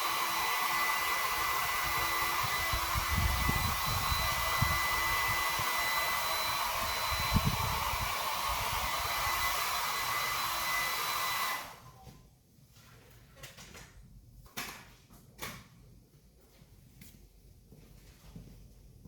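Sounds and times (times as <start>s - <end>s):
heat gun blowing with whine: 0.0s - 12.0s.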